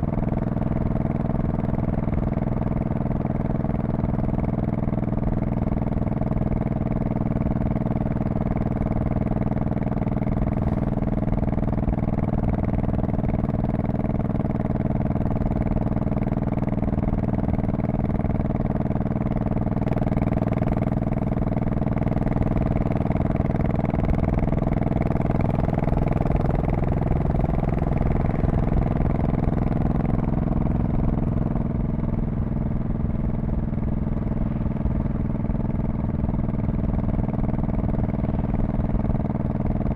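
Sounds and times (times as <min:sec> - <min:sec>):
motorcycle engine cruising: 0:19.3 - 0:39.9.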